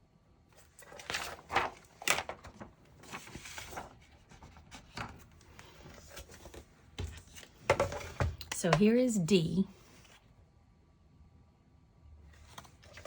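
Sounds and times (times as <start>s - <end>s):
cardstock rustling and rubbing: 0.6s - 8.4s.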